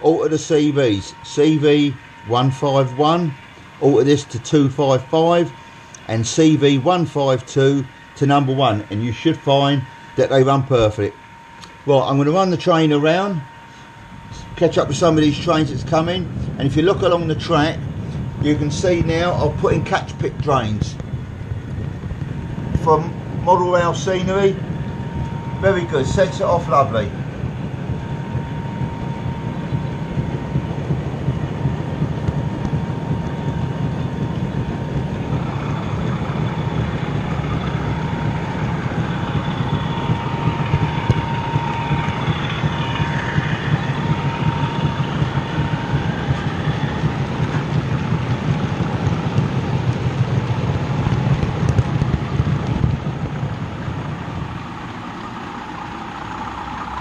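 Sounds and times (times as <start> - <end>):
model trains running on track: 0.0 - 57.0.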